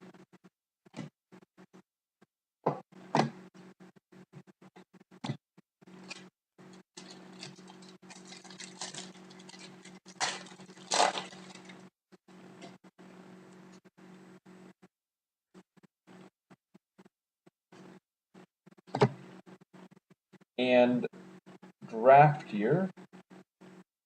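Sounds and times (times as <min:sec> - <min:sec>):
low steady hum: 0:05.9 - 0:14.7
cards rustling: 0:07.0 - 0:11.8
wrapper crinkling: 0:07.0 - 0:11.9.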